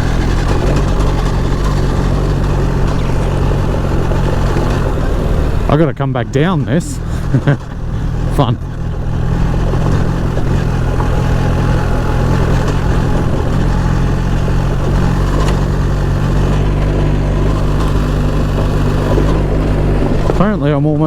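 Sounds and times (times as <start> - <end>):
motorcycle engine pulling: 0.0 - 21.0.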